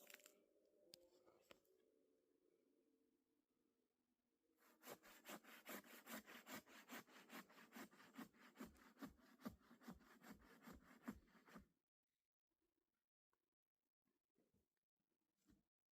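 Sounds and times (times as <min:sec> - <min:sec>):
hand saw cutting wood: 0:04.6 - 0:11.6.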